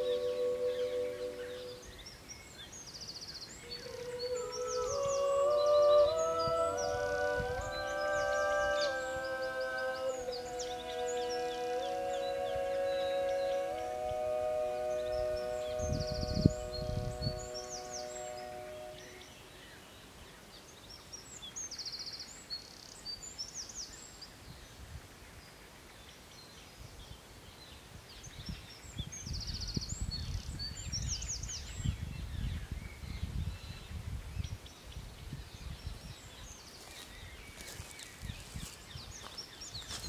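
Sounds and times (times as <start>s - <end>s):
birds singing: 0.0s - 24.7s, 27.5s - 40.0s.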